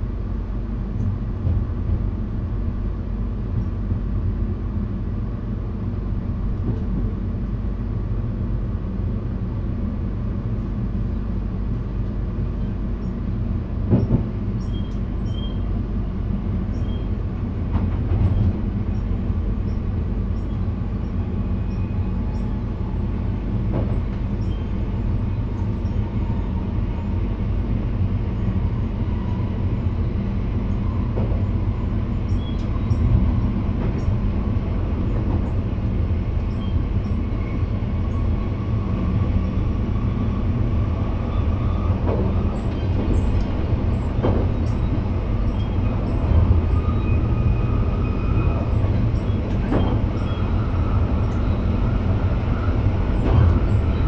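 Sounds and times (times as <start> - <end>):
electric train rumble: 0.0 - 54.0.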